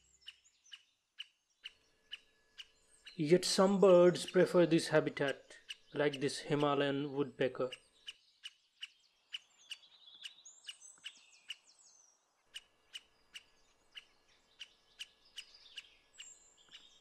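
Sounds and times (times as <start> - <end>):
bird twittering call: 0.0 - 17.0
bird chip notes: 3.1 - 7.8.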